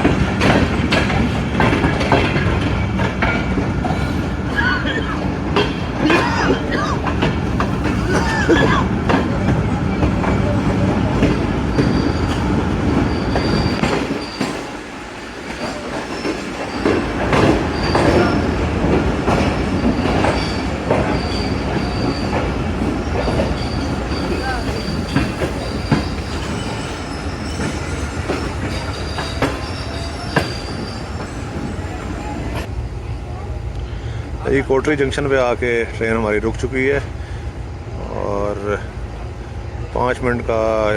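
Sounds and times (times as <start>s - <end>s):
train wheels clattering over joints: 0.0s - 32.7s
train wheels squealing: 2.0s - 14.8s, 15.4s - 32.7s.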